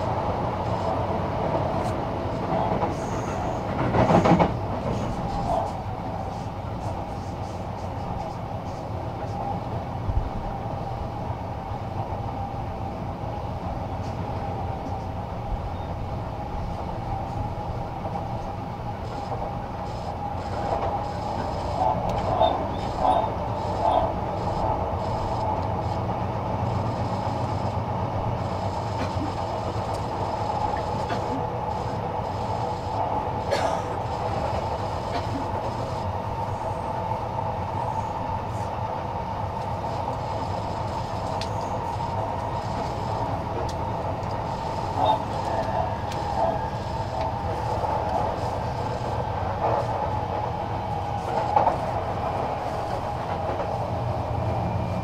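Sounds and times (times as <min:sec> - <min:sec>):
train rattles: 0:00.0 - 0:55.0
train wheels rumbling on rail: 0:00.0 - 0:55.0
running gear hum: 0:13.3 - 0:55.0.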